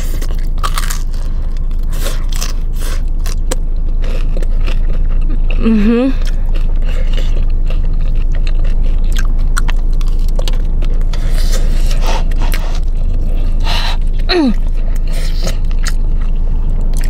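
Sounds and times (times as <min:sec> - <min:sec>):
person chewing food: 0:00.0 - 0:17.0
steady low hum: 0:00.0 - 0:17.0
person humming with pleasure: 0:05.6 - 0:06.3, 0:14.3 - 0:14.6.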